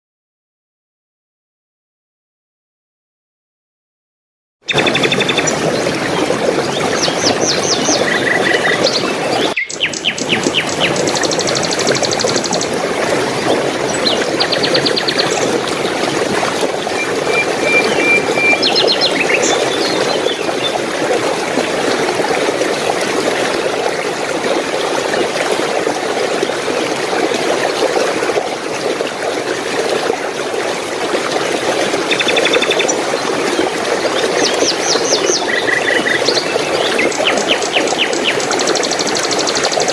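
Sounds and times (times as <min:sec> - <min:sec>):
small birds chirping: 0:04.7 - 0:12.7, 0:17.0 - 0:20.7, 0:34.4 - 0:39.8
running water rushing: 0:04.7 - 0:39.9.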